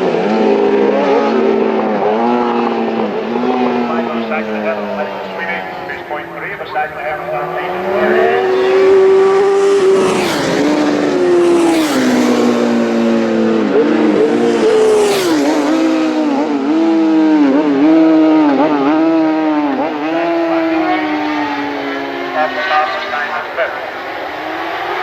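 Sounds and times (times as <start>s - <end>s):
racing motorcycle engines screaming: 0.0s - 25.0s
rushing of passing bikes: 0.0s - 25.0s.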